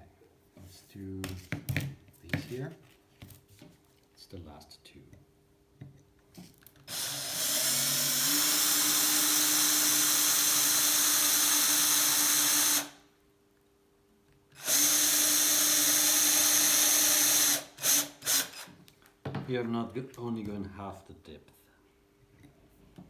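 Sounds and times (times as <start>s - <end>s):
electric drill boring holes: 6.8s - 13.0s, 14.6s - 18.7s.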